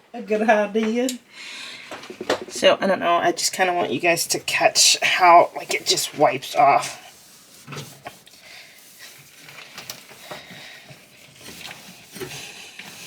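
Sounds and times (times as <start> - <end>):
small knocks: 1.9 - 2.6
faint rubbing: 4.4 - 13.0.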